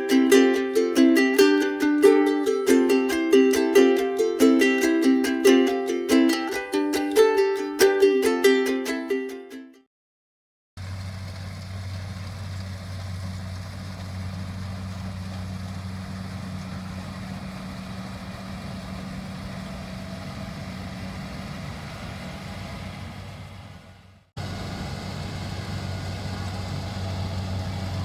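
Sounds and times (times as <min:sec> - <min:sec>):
harvester engine humming: 0:10.8 - 0:28.0.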